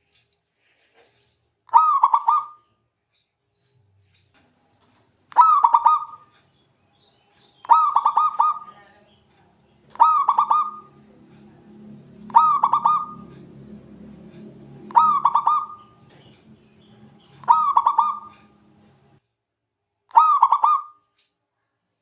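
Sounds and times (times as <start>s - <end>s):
dove cooing: 1.7s - 2.6s, 5.3s - 6.3s, 7.6s - 8.9s, 9.9s - 19.1s, 20.2s - 20.9s
faint low rumble: 7.8s - 19.2s.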